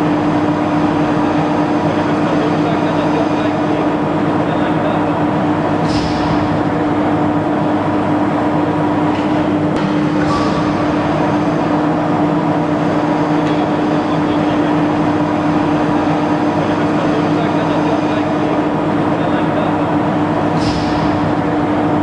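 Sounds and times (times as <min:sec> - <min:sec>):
industrial machinery hum: 0:00.0 - 0:22.0.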